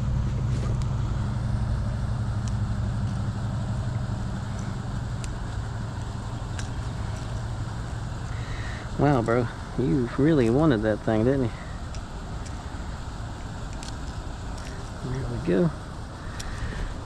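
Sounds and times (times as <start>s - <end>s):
motor hum: 0.0s - 17.0s
pliers clicking: 4.4s - 7.5s.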